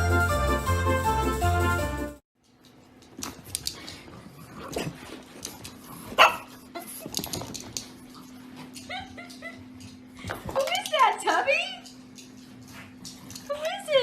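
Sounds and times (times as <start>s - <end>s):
dog barking: 6.2s - 6.5s.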